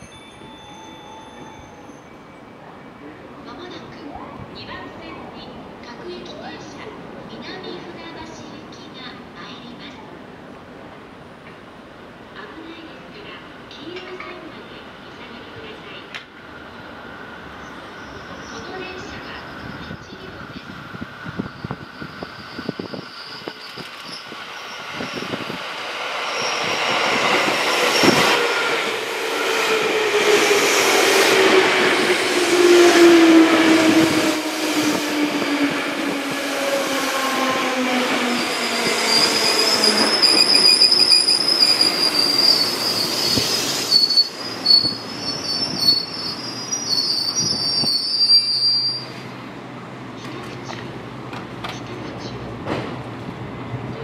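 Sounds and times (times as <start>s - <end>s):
high wheel squeal: 21.3s - 28.6s, 38.3s - 49.2s.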